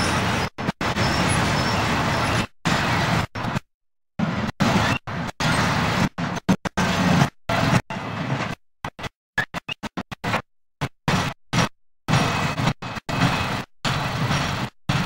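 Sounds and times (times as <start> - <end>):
wagon wheels rumbling on track: 0.0 - 3.2.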